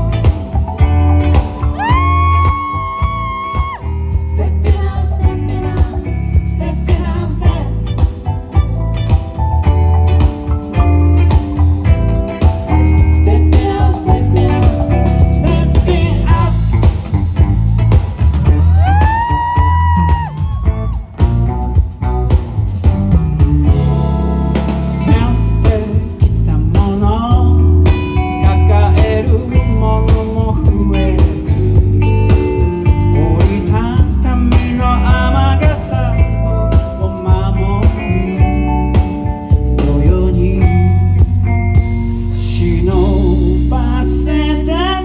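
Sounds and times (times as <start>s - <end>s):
bass line: 0.0s - 45.0s
live band playing pop-rock: 0.0s - 45.0s.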